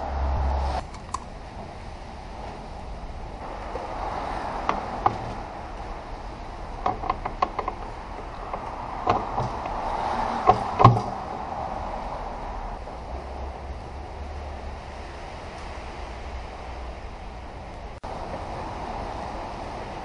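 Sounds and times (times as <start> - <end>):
steady background noise: 0.0 - 20.0
metal parts knocking and clinking: 6.7 - 9.8.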